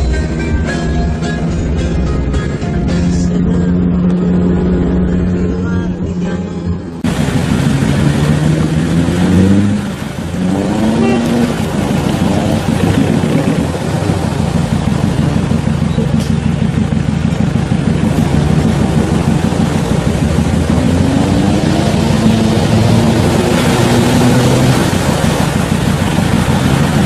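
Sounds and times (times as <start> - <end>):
engine revving hard: 7.0 - 27.0.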